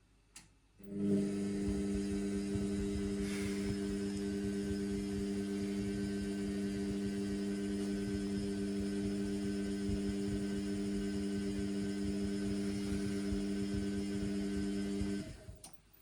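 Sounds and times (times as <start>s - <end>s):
washing machine hum: 0.8s - 16.0s.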